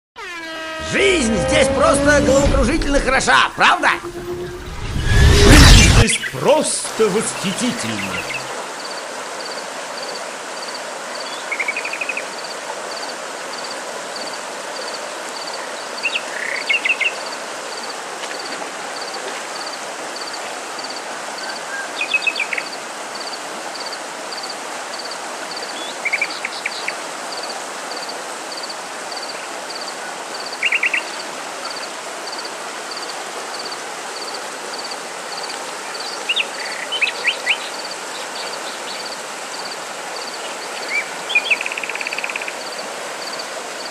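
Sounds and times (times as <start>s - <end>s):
steady rushing background: 1.8s - 7.0s.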